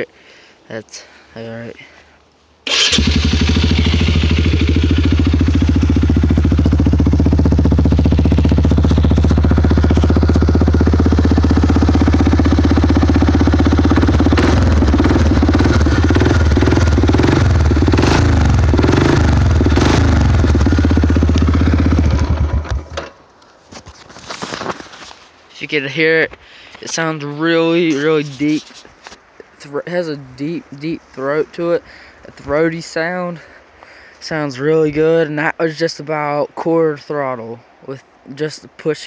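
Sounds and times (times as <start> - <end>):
atv engine idling: 2.7 - 23.0
atv engine revving: 2.7 - 23.0.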